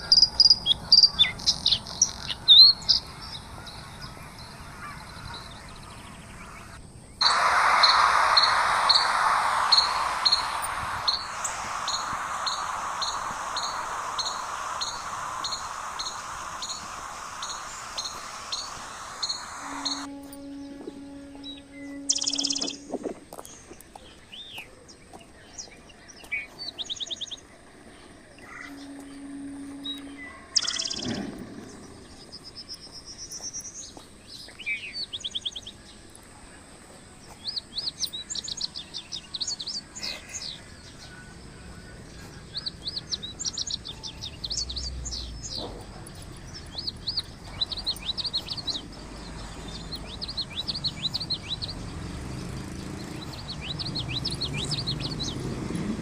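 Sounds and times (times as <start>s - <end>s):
loud rushes of noise: 0.0s - 23.8s, 27.6s - 33.0s, 40.4s - 56.0s
small birds chirping: 0.0s - 56.0s.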